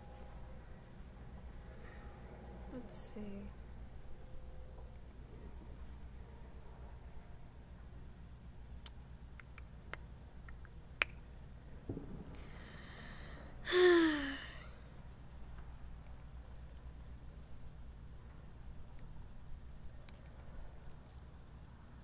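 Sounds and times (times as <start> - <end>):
person exhaling with a sigh: 12.4 - 14.8.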